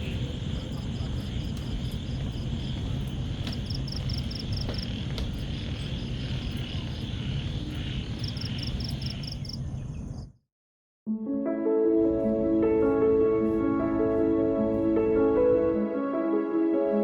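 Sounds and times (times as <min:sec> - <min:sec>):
high insect drone: 0:00.0 - 0:10.2.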